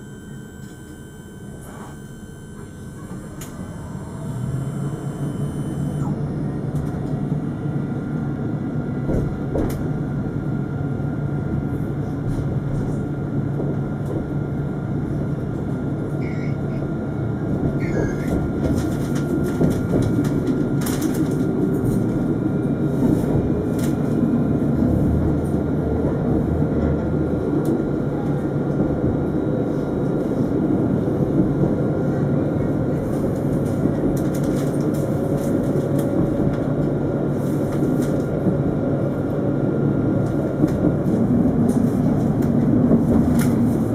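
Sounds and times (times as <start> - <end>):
faint whine: 0.0 - 6.6
tram rail rumble: 0.0 - 43.9.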